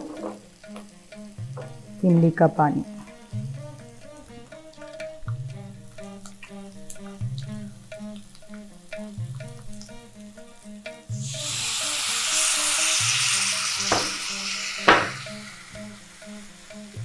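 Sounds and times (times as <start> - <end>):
liquid sizzling in a hot wok: 0.0 - 17.0
soft rhythmic background music: 0.0 - 17.0
sharp knocks: 1.4 - 2.4, 13.9 - 14.2, 14.8 - 15.4.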